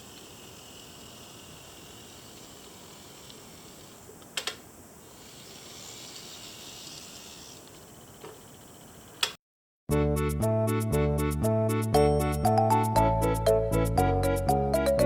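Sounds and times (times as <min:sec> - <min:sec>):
faint steady hiss: 0:00.0 - 0:09.2.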